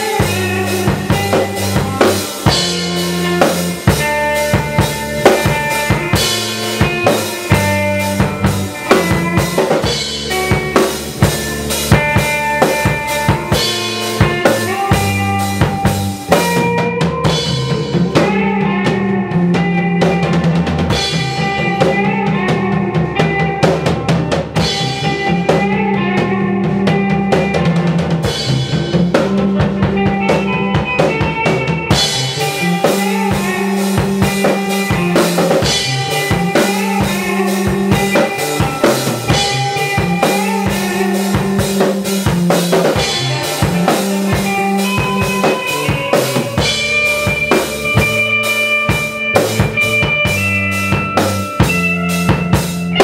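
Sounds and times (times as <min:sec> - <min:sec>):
rock band music: 0:00.0 - 0:53.0.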